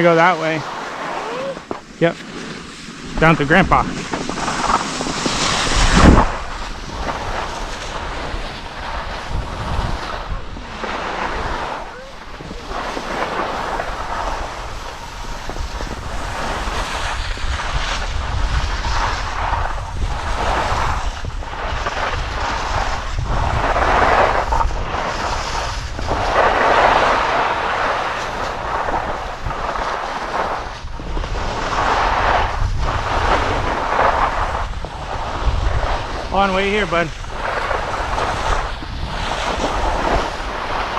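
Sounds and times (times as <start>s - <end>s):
skis scraping over snow: 0.0s - 40.9s
wind rushing over microphone: 0.0s - 40.9s.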